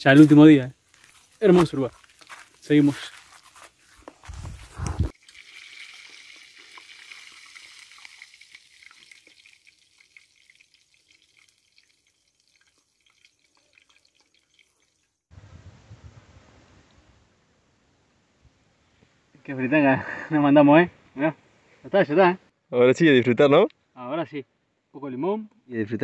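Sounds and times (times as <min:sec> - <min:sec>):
fish frying with pops and crackles: 0:05.1 - 0:15.3
low rumbling noise: 0:15.4 - 0:18.4.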